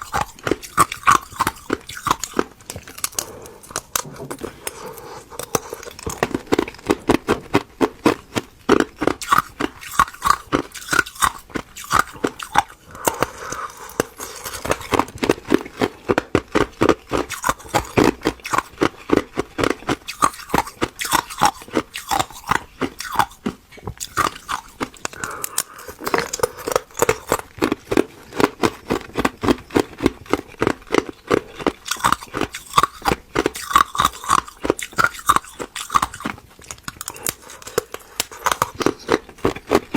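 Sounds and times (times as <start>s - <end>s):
ice crunching being chewed: 0.0s - 39.9s.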